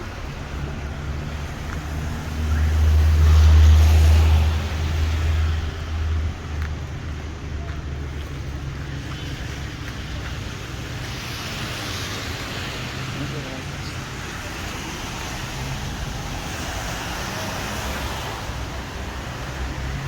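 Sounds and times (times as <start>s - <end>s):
wet street traffic: 0.0s - 20.0s.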